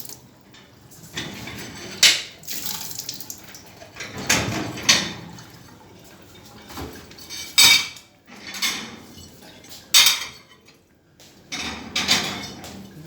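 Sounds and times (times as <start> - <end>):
dishes and cutlery clattering: 1.1 - 2.4, 3.8 - 5.4, 6.3 - 10.8, 11.5 - 13.0.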